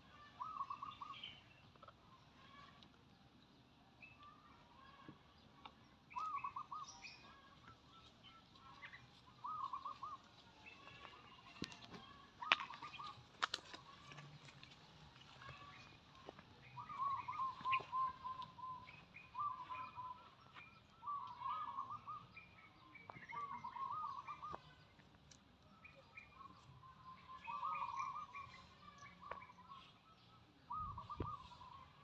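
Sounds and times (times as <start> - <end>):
birds warbling: 0.0 - 2.8, 5.4 - 25.0, 25.8 - 32.0
high bird chirps: 16.6 - 24.9.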